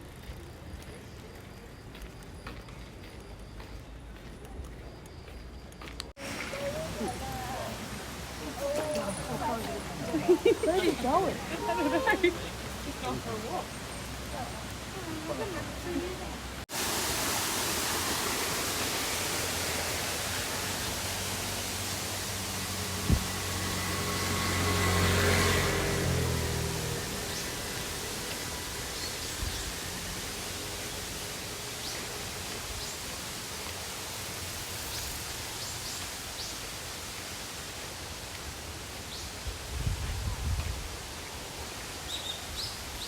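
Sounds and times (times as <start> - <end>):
waterfall roaring: 6.2 - 39.4.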